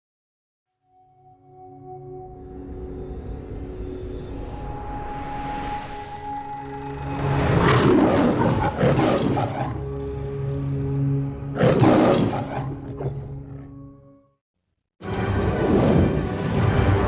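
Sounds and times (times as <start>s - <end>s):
orchestral music: 0.9s - 14.2s, 15.0s - 17.0s
lion roaring: 7.5s - 13.8s.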